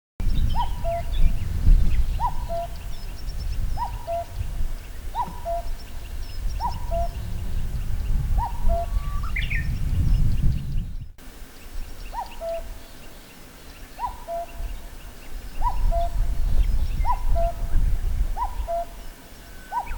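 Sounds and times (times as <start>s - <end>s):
other birds chirping: 0.2s - 19.9s
cuckoo calling: 0.4s - 3.2s, 3.8s - 7.3s, 8.4s - 9.7s, 11.5s - 19.9s.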